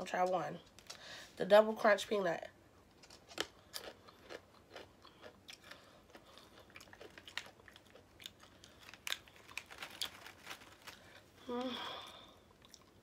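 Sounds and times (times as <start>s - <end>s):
peanuts being chewed: 2.9s - 11.2s, 12.4s - 13.0s.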